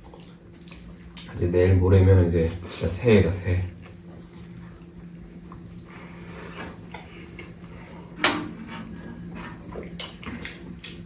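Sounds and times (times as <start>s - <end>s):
soft chewing and mouth noises: 0.0s - 1.4s, 3.7s - 8.2s, 9.0s - 11.0s
steady low hum: 0.0s - 11.0s.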